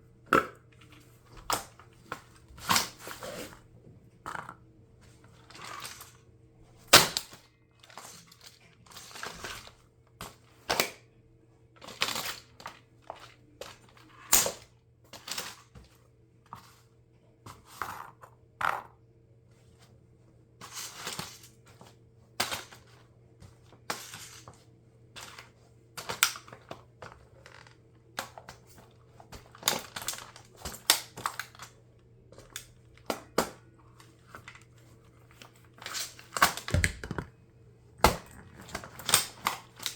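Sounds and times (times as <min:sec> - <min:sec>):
plastic toy car cracking underfoot: 0:35.9 - 0:37.4, 0:38.0 - 0:39.9.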